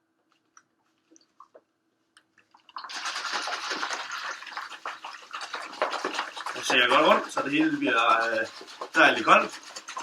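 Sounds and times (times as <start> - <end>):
ice rattling in cocktail shaker: 2.8 - 10.0.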